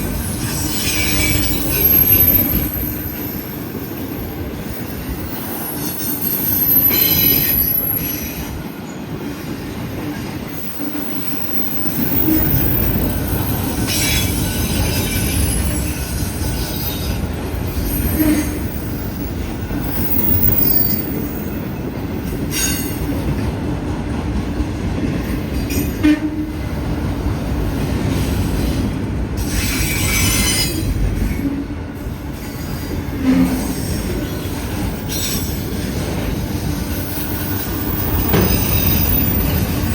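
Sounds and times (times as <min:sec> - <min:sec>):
train cars knocking: 0:00.0 - 0:39.9
train wheels rumbling on rail: 0:00.0 - 0:39.9
wheel squeal: 0:00.4 - 0:03.6, 0:05.4 - 0:08.4, 0:10.6 - 0:17.2.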